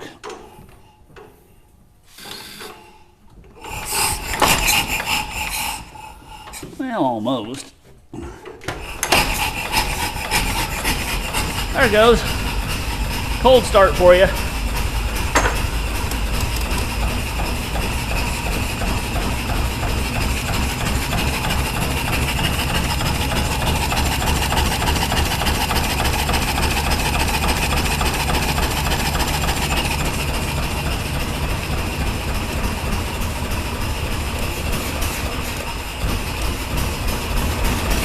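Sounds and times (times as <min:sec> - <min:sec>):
single-cylinder engine idling: 0:08.8 - 0:38.0.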